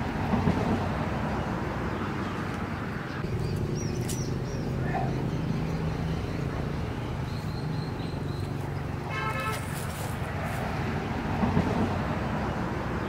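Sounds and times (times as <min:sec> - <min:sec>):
small bird chirping: 0:03.1 - 0:08.9.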